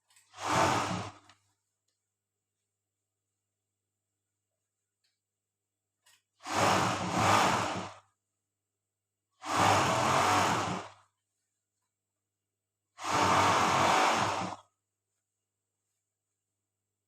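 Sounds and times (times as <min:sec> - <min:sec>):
overlock sewing machine whirring: 0:00.1 - 0:01.4, 0:06.4 - 0:08.1, 0:09.4 - 0:11.1, 0:13.0 - 0:14.7.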